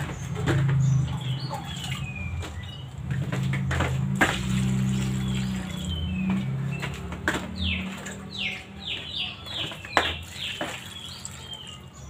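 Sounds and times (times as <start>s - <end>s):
water poured over greens: 10.2s - 11.8s.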